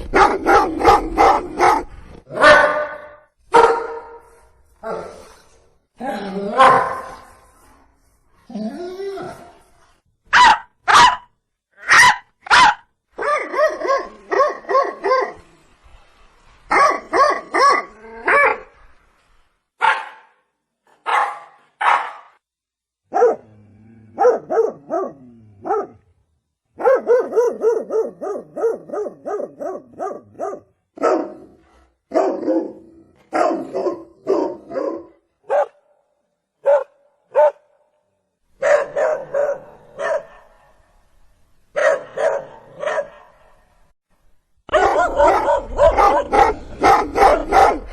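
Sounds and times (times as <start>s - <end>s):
dog barking: 0.0s - 4.3s, 6.6s - 7.2s, 10.3s - 15.4s, 16.7s - 18.6s, 19.8s - 20.4s, 21.0s - 22.4s, 23.1s - 23.5s, 24.2s - 26.0s, 26.8s - 35.9s, 36.6s - 37.8s, 38.6s - 40.8s, 41.7s - 43.6s, 44.7s - 47.9s.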